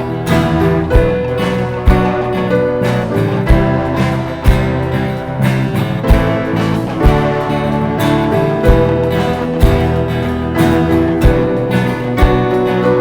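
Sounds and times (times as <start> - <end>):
live band with guitar: 0.0 - 13.0
low drum thump: 6.0 - 7.5.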